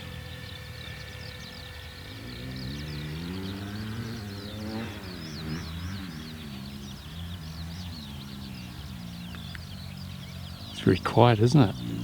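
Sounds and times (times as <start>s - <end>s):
model plane motor humming: 0.0s - 4.6s
birds chirping: 0.0s - 12.0s.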